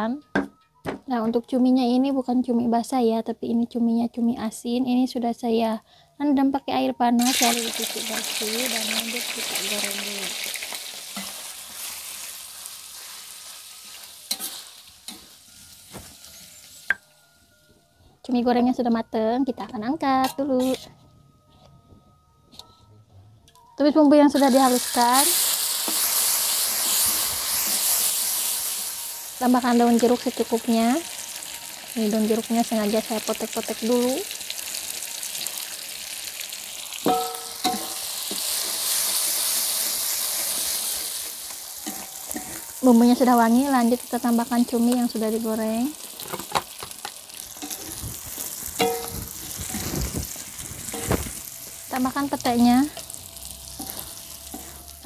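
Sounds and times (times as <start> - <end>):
squid sizzling in hot oil: 7.2 - 17.0, 24.3 - 55.0
utensil clanking against pan: 37.1 - 38.5, 48.8 - 49.8.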